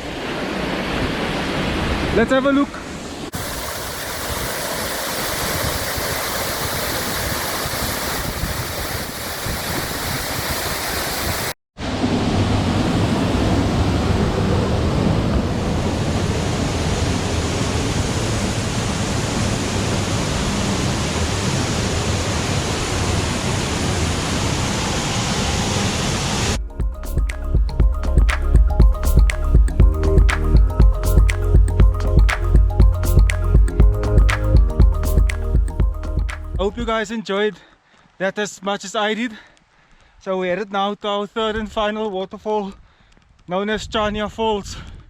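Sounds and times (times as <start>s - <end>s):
waterfall rushing: 3.3s - 26.6s.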